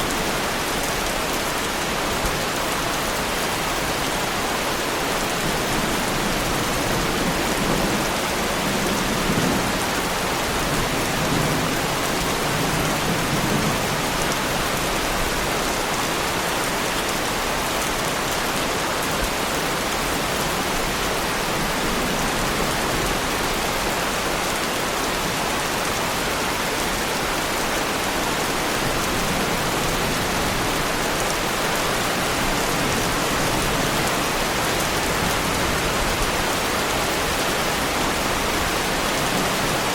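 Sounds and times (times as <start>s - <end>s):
heavy rain on car bodywork: 0.0s - 39.9s.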